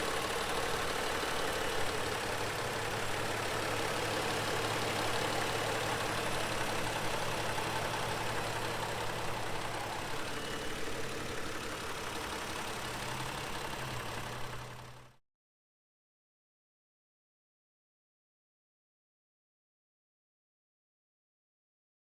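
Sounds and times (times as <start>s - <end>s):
car engine running: 0.0s - 15.1s.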